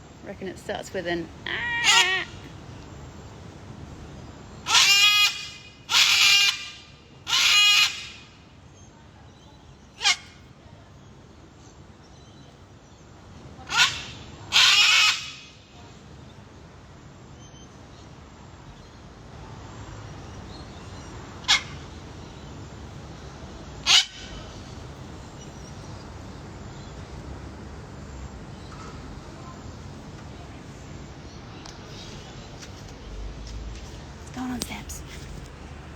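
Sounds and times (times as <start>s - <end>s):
cockatoos screeching: 1.4s - 2.5s, 4.6s - 8.2s, 13.7s - 15.6s, 23.8s - 24.6s.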